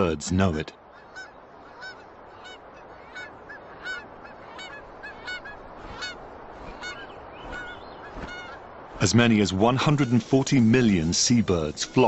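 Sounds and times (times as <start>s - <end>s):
seabirds honking calls: 0.8s - 12.0s
steady rushing background: 4.8s - 12.0s.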